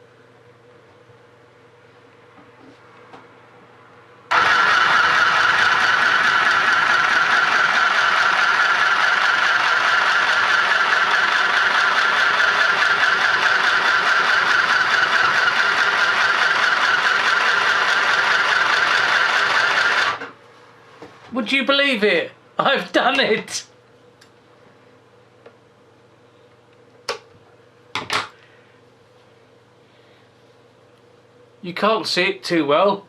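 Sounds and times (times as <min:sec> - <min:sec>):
sewing machine running: 0:04.3 - 0:20.3.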